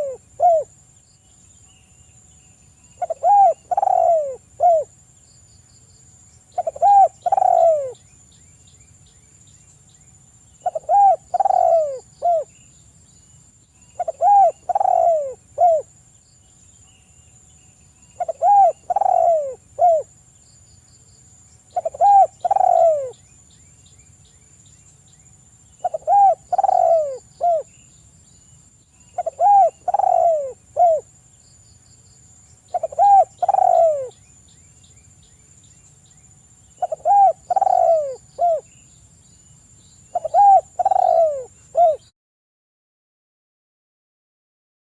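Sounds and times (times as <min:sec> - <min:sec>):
dove cooing: 0:00.0 - 0:00.7, 0:03.0 - 0:04.9, 0:06.6 - 0:08.0, 0:10.6 - 0:12.6, 0:14.0 - 0:15.9, 0:18.2 - 0:20.1, 0:21.7 - 0:23.2, 0:25.8 - 0:27.7, 0:29.2 - 0:31.1, 0:32.7 - 0:34.2, 0:36.8 - 0:38.7, 0:40.1 - 0:42.1.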